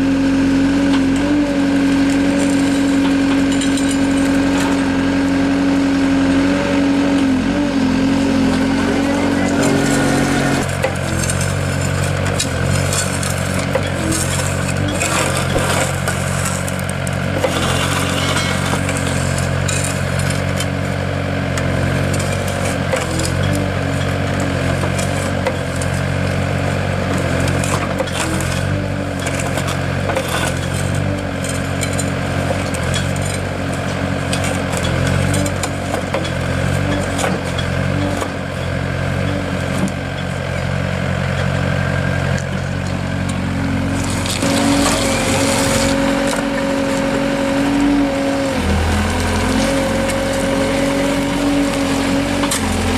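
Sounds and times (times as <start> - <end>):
heavy machine engine running: 0.0 - 52.9
clinks and crunching: 2.0 - 4.9, 8.5 - 20.8, 21.5 - 26.1, 27.2 - 40.7, 42.3 - 52.9.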